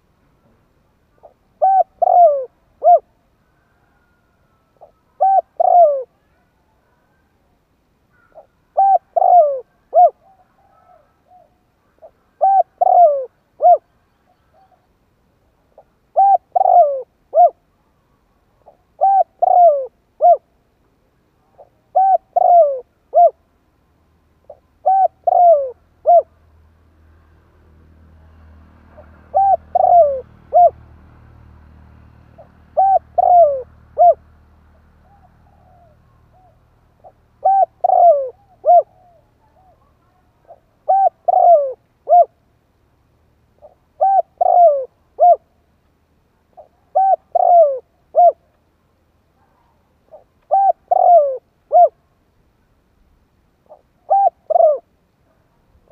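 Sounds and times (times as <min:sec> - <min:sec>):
dove cooing: 0:01.1 - 0:07.3, 0:08.1 - 0:14.9, 0:15.8 - 0:17.7, 0:18.6 - 0:20.5, 0:21.4 - 0:23.5, 0:24.4 - 0:26.4, 0:29.0 - 0:30.8, 0:32.4 - 0:34.2, 0:35.0 - 0:42.4, 0:43.6 - 0:45.6, 0:46.5 - 0:48.5, 0:49.4 - 0:52.0, 0:53.6 - 0:55.4.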